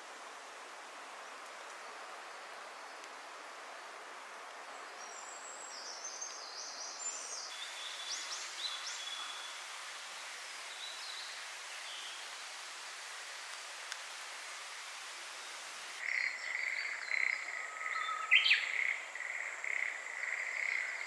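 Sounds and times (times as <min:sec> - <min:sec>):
songbirds chirping: 0:04.7 - 0:21.0
running spring water: 0:07.5 - 0:16.1.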